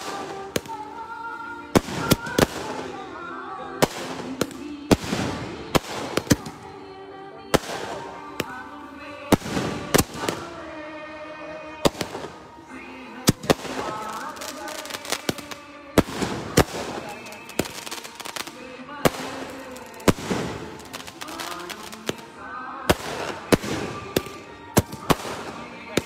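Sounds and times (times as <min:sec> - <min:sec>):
fireworks bangs: 0:01.7 - 0:03.1, 0:03.8 - 0:06.6, 0:09.2 - 0:10.6, 0:11.8 - 0:12.5, 0:13.2 - 0:22.2, 0:22.9 - 0:26.0.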